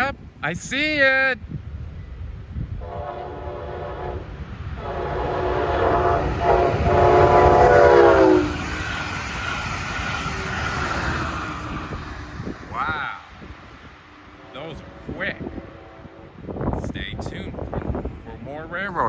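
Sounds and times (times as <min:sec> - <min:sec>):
fast train rushing past: 0:00.0 - 0:19.0
train horn blasts: 0:02.8 - 0:08.9, 0:14.3 - 0:17.6.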